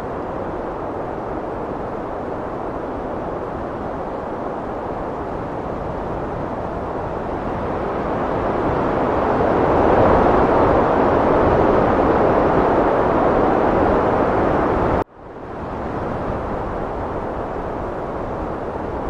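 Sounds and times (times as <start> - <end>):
heavy wind blowing: 0.0 - 19.0.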